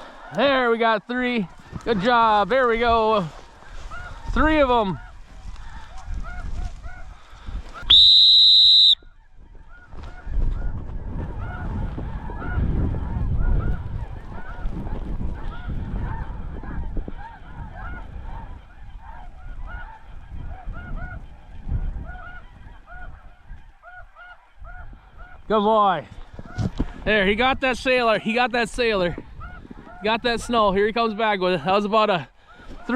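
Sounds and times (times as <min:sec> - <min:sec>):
geese honking: 0:00.0 - 0:07.9, 0:09.0 - 0:32.9
wind rumbling on microphone: 0:01.5 - 0:08.0, 0:09.0 - 0:31.0
whistle blast: 0:07.9 - 0:09.1.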